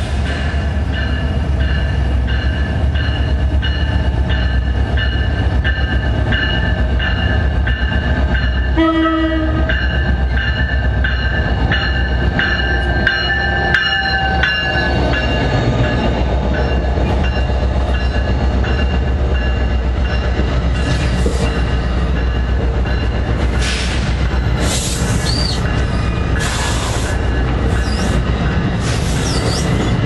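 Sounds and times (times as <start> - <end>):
train engine and wheel rumble: 0.0 - 30.0
train horn blast: 8.7 - 9.7.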